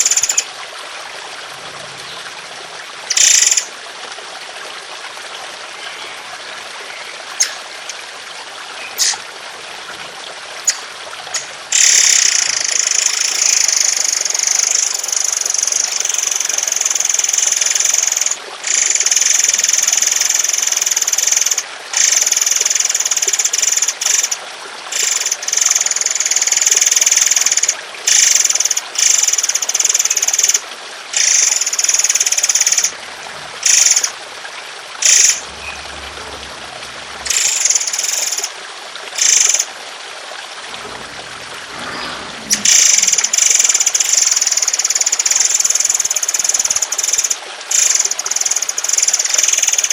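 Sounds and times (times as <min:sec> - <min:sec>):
trickling water: 0:00.0 - 0:49.9
bird harsh rapid calls: 0:07.3 - 0:08.0, 0:08.8 - 0:09.9, 0:10.6 - 0:13.6, 0:41.8 - 0:44.7.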